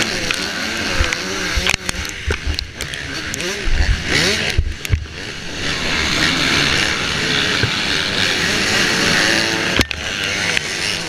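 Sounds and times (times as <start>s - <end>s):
motocross bike engine revving: 0.0s - 11.0s
wind on microphone: 0.9s - 7.0s.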